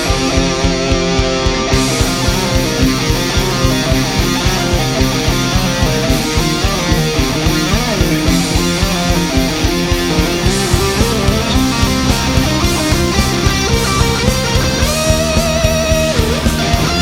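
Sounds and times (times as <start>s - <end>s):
bass guitar: 0.0s - 17.0s
drum beat: 0.0s - 17.0s
electric guitars: 0.0s - 17.0s.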